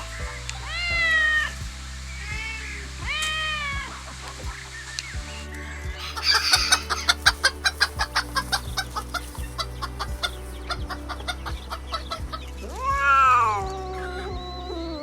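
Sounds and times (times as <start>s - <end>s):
hen clucking: 6.0s - 9.4s
cat meowing: 12.7s - 15.0s.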